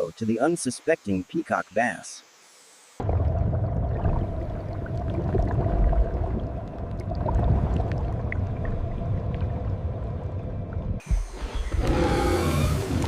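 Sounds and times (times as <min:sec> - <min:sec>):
deep continuous rumble: 0:03.0 - 0:13.0.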